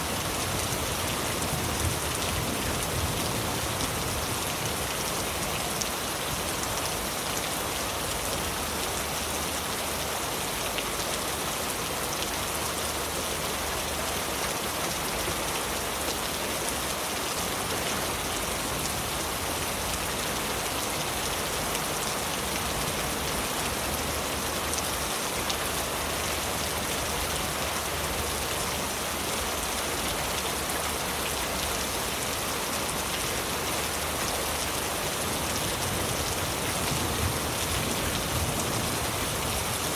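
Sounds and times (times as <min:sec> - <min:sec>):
heavy rain on leaves: 0:00.0 - 0:39.9.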